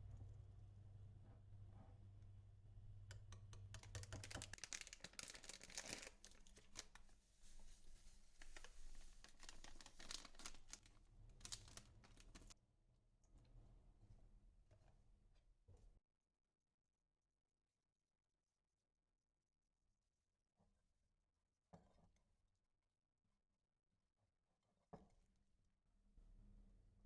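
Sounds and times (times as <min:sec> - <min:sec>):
small rapid clicks: 0:03.0 - 0:06.9
crinkling and tearing: 0:03.7 - 0:12.6.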